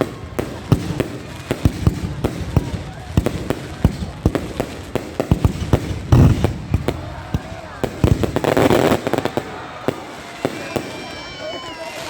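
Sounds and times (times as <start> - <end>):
firework crackling: 0.0 - 12.0.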